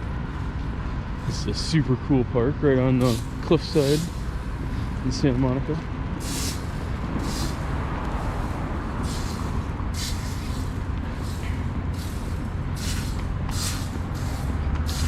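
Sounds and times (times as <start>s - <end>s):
low rumble of street traffic: 0.0s - 15.0s
short bursts of hiss: 6.2s - 15.0s.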